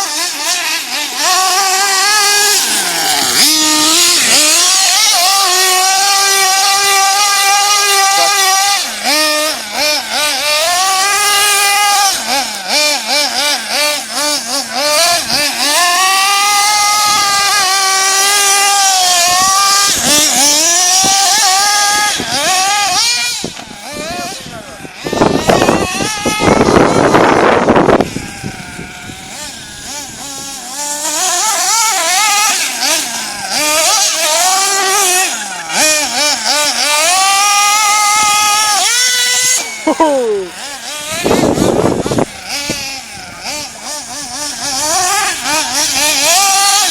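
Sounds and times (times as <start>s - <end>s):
nitro engine revving: 0.0s - 46.9s.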